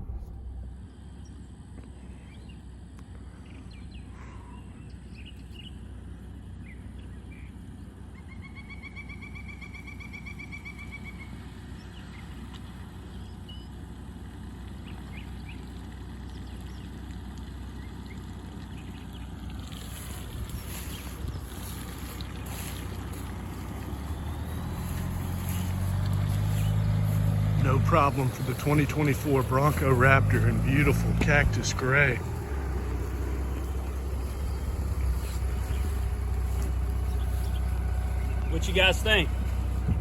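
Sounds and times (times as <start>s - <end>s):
rushing noise: 0.0s - 1.2s
birds chirping: 0.0s - 14.0s, 14.7s - 40.0s
engine rumble at a crawl: 0.0s - 40.0s
bird pulsed trill: 33.6s - 38.6s.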